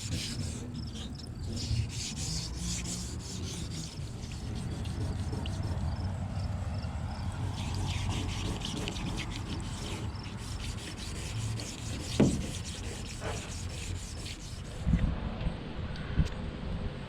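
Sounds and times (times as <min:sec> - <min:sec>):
sandpaper rubbing on metal hull: 0:00.0 - 0:06.1, 0:07.4 - 0:14.8.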